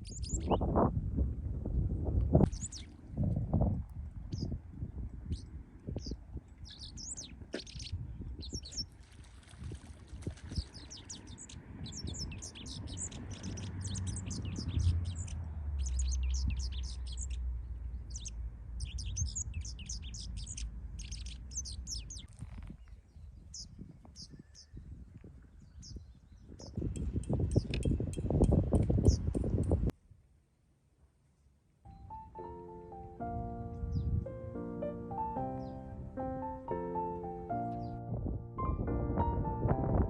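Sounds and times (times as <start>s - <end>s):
small birds chirping: 0.0s - 0.7s, 2.4s - 3.0s, 4.2s - 29.7s, 33.8s - 34.2s, 35.2s - 36.0s
low rumble: 37.6s - 40.0s.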